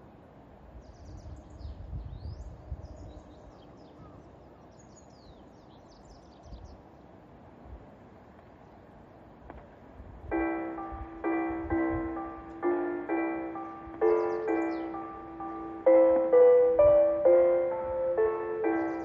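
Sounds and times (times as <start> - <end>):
low outdoor background: 0.0 - 19.0
small birds chirping: 0.8 - 9.0, 10.3 - 19.0
low rumbles: 10.3 - 19.0.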